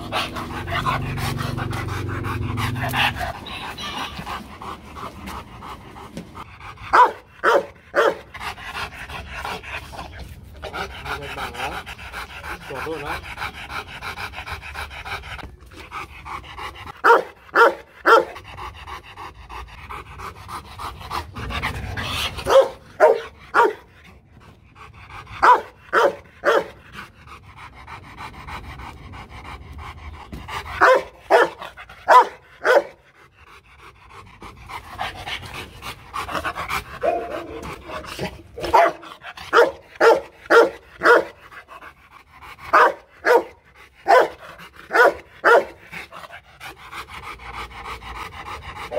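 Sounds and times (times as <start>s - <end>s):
dog panting: 0.0s - 48.9s
dog barking: 6.9s - 8.2s, 17.0s - 18.4s, 22.5s - 23.8s, 25.4s - 26.8s, 30.8s - 33.0s, 38.6s - 41.4s, 42.7s - 45.8s.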